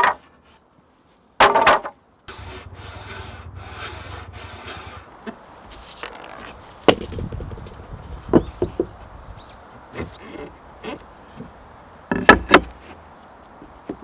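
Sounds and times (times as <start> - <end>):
loud scrape: 2.3 - 5.1
saw rasping through wood: 2.3 - 5.1.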